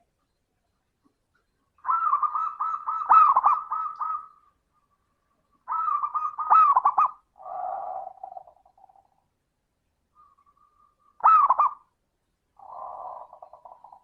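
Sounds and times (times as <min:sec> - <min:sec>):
dove cooing: 0:01.8 - 0:05.0, 0:05.6 - 0:09.1, 0:10.2 - 0:11.9, 0:12.6 - 0:14.0.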